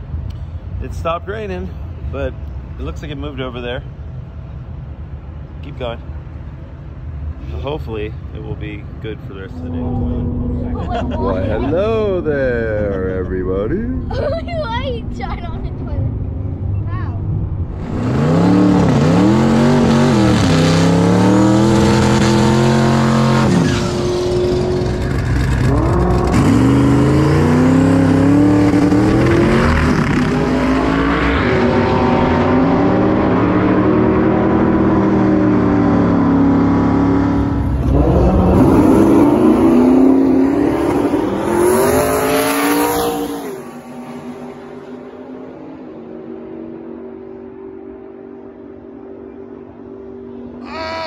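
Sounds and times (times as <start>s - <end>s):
drag racing car engine revving: 17.7s - 50.6s.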